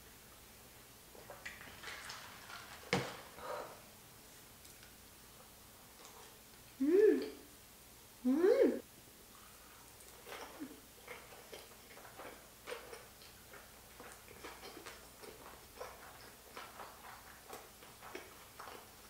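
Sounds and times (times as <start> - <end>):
person chewing food: 9.3 - 19.0.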